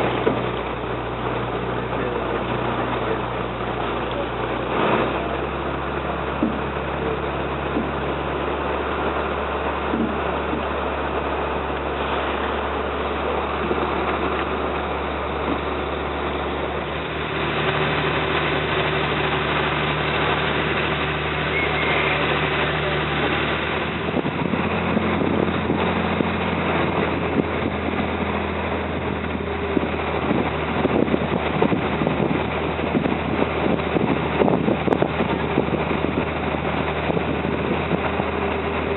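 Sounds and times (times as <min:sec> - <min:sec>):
boat engine droning: 0:00.0 - 0:38.9
water wash: 0:00.0 - 0:38.9
wind noise: 0:13.2 - 0:38.9.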